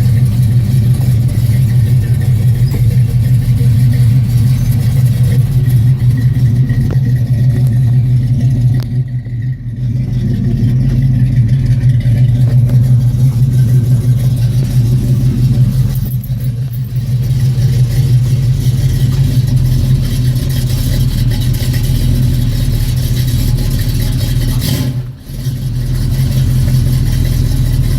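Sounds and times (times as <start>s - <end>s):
car engine idling: 0.0s - 27.9s.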